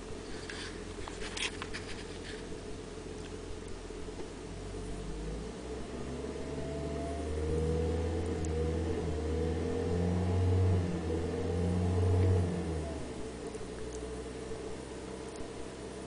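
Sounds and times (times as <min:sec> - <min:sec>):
faint rising whine: 0:00.0 - 0:16.0
car engine revving: 0:04.4 - 0:16.0.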